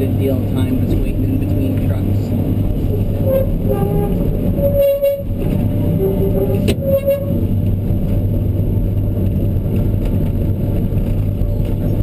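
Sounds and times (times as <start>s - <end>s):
excavator diesel engine running: 0.1s - 12.0s
short tones: 2.9s - 7.4s.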